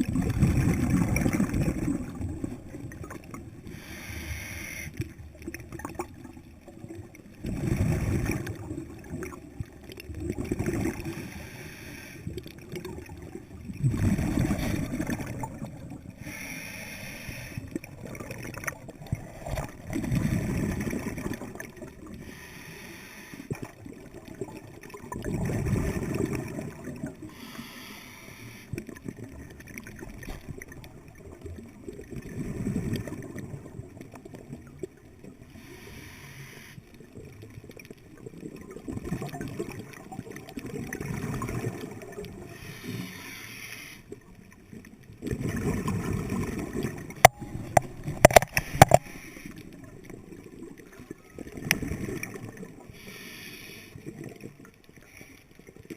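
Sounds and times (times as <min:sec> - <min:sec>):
gurgling exhaled bubbles: 0:00.0 - 0:16.4, 0:17.4 - 0:22.3, 0:23.5 - 0:27.4, 0:28.8 - 0:35.5, 0:37.2 - 0:42.6, 0:44.7 - 0:53.1
quiet bubbling: 0:00.0 - 0:55.9.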